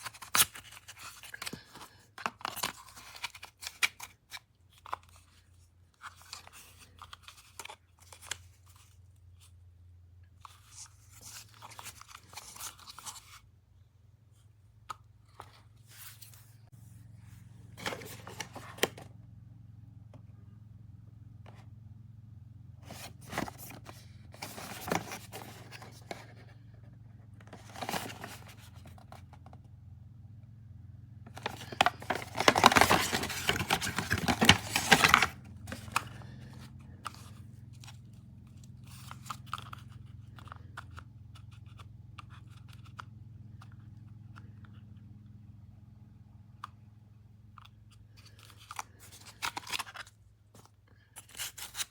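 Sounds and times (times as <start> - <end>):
packaging clicks and rustles: 0.0 - 5.4, 17.8 - 19.1, 22.8 - 26.6, 27.4 - 29.6, 31.3 - 38.0, 47.6 - 51.9.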